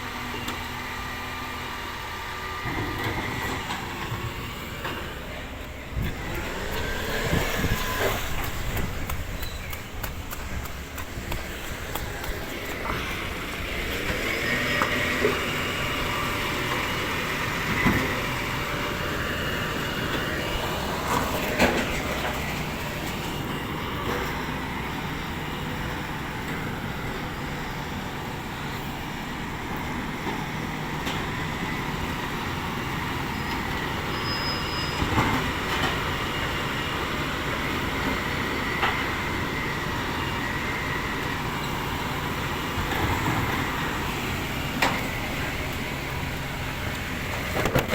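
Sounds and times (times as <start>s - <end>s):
rubbish truck engine running: 0.0s - 47.9s.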